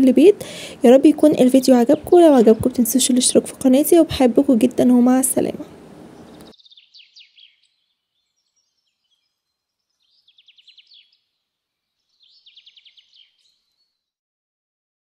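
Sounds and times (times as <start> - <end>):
bird trilling: 6.1 - 9.3, 9.9 - 11.2, 12.1 - 13.6.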